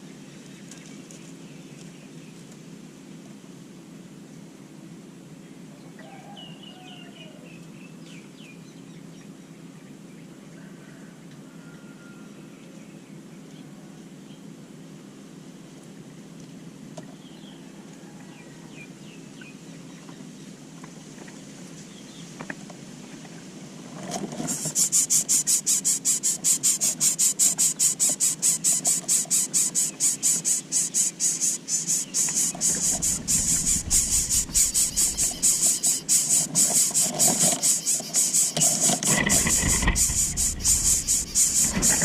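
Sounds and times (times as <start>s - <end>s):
pulsing insect chirring: 24.5s - 42.0s
faint high chirps: 26.8s - 37.1s.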